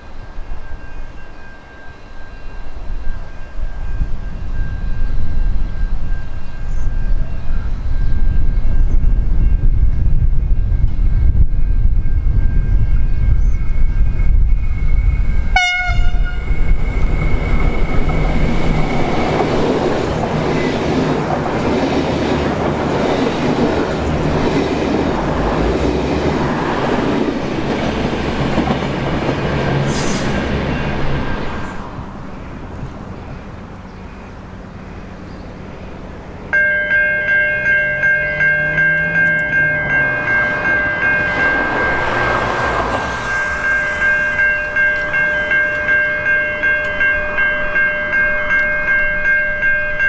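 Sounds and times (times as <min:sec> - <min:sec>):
train running by: 0:00.0 - 0:50.0
train diesel rumble: 0:02.8 - 0:48.4
train horn blast: 0:15.5 - 0:16.6.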